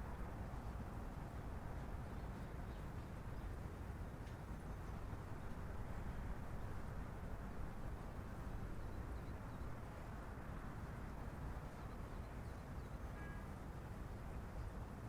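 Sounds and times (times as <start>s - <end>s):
distant city traffic hum: 0.0s - 15.0s
faint bird chirps: 11.7s - 13.4s.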